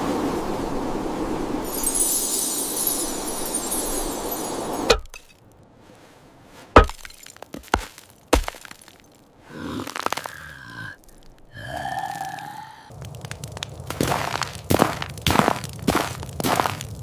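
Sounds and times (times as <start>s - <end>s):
sharp cracks or knocks: 6.8s - 9.1s, 13.0s - 17.0s.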